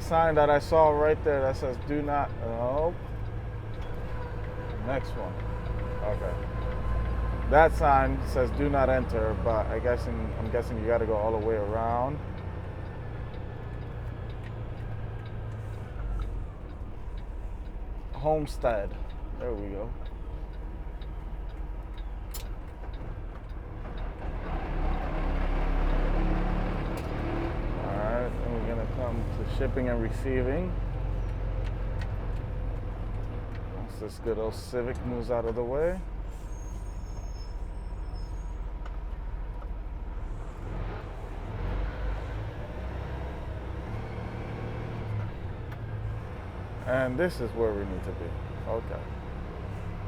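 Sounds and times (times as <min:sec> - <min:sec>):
truck diesel engine running: 0:00.0 - 0:50.0
faint clicks: 0:12.3 - 0:18.2.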